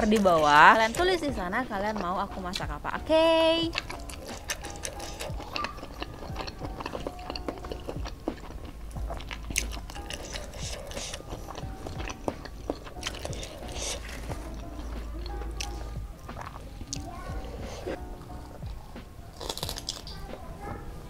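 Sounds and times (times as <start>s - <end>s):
chewing with mouth clicks: 0.0s - 2.7s, 3.6s - 20.5s
fingers squishing rice: 3.7s - 18.0s.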